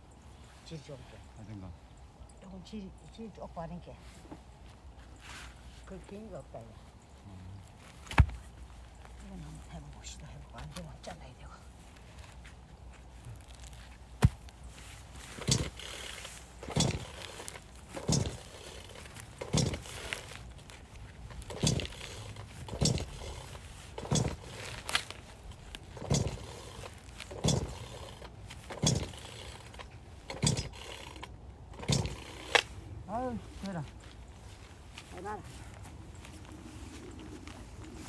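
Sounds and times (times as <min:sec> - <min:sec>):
strokes on a log: 0:07.6 - 0:09.8, 0:11.8 - 0:38.0
sharp crack of wood: 0:08.0 - 0:08.5.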